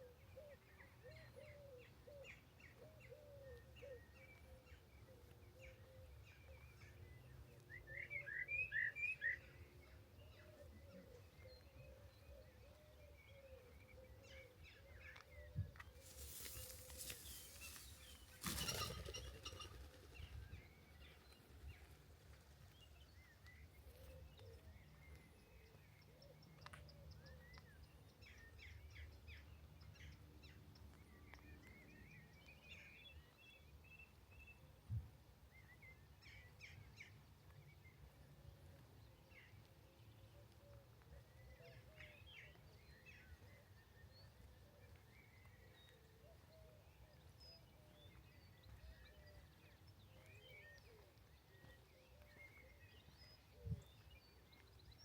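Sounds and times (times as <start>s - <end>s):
small birds chirping: 14.9s - 25.8s.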